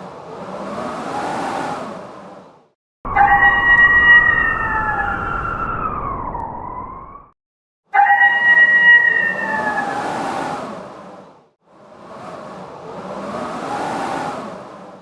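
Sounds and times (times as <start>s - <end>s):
whooshing rush: 0.0s - 6.1s, 8.2s - 15.0s
loud siren-like wail: 3.1s - 10.5s.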